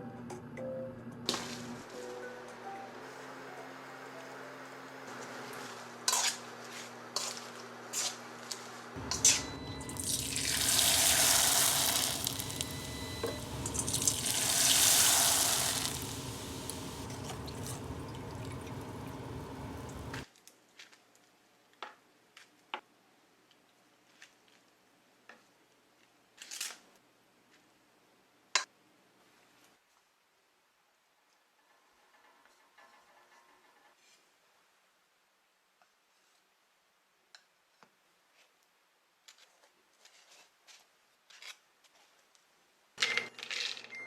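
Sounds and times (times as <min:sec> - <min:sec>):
water gushing while rinsing: 0:09.8 - 0:20.2.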